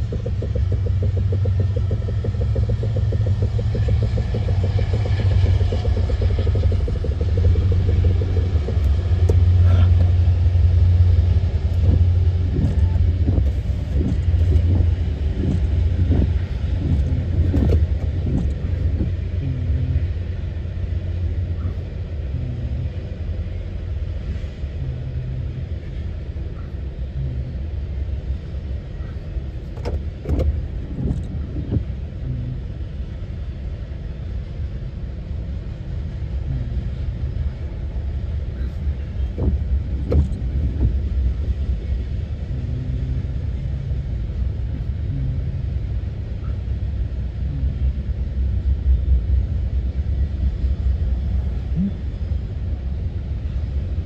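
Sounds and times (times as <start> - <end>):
train clanks: 0.0 - 10.3
freight train wheels rumbling: 0.0 - 54.0.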